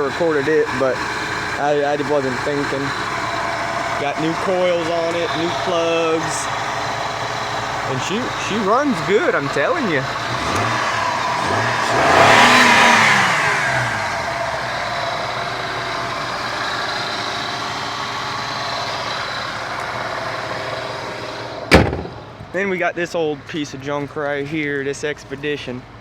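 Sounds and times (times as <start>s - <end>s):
car engine revving and idling: 0.0s - 22.5s
sharp knock: 21.7s - 22.3s.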